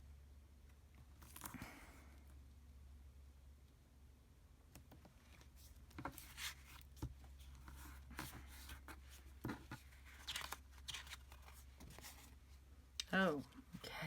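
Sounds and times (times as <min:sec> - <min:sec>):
paper rustling: 0:05.2 - 0:12.5.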